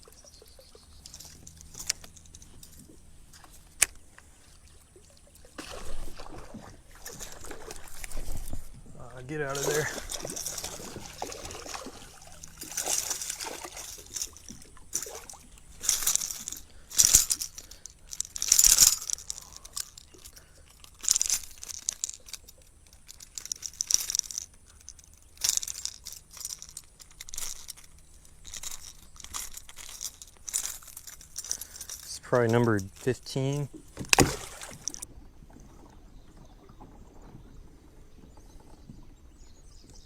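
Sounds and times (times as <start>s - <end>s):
short splashes of water: 4.4s - 8.4s, 9.5s - 15.5s, 33.9s - 35.1s.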